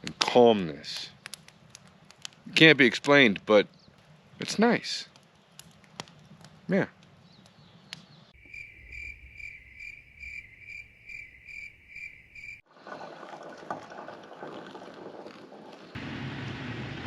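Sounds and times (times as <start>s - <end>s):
hissy outdoor background: 0.0s - 5.6s, 6.6s - 14.0s, 15.8s - 17.0s
cricket chirping: 8.4s - 12.6s.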